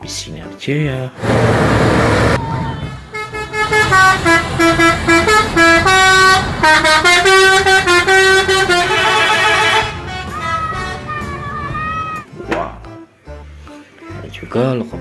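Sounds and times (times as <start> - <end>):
musical bus horn: 2.3 - 12.1.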